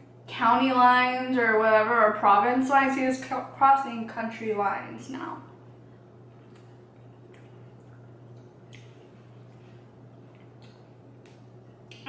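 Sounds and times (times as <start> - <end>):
steady low hum: 0.0 - 12.0
quiet crackly chewing: 6.2 - 12.0.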